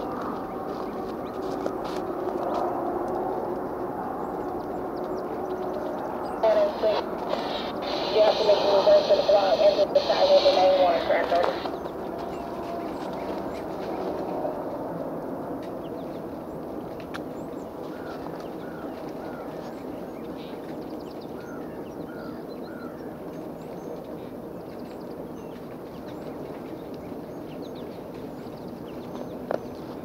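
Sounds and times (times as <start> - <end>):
birds chirping: 4.2 - 14.4.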